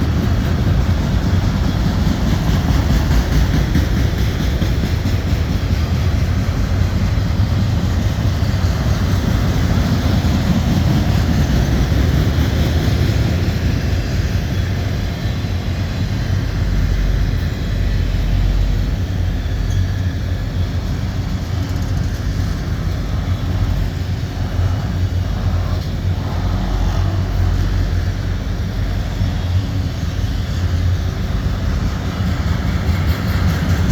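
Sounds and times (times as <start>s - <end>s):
freight train wheels rumbling on rails: 0.0s - 33.9s.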